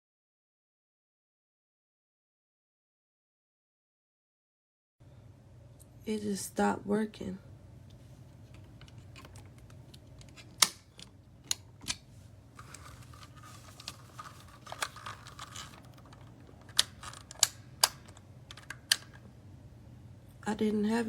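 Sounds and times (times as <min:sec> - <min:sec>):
faint low hum: 0:05.0 - 0:21.0.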